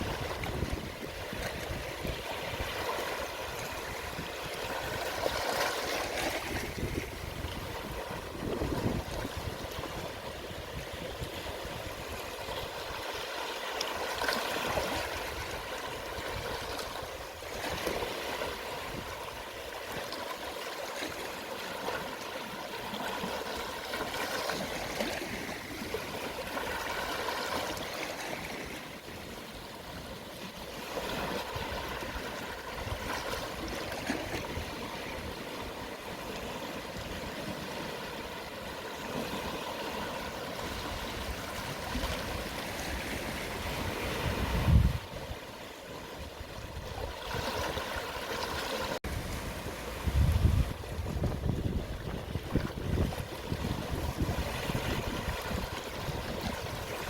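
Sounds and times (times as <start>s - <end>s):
small waves lapping on shore: 0.0s - 57.0s.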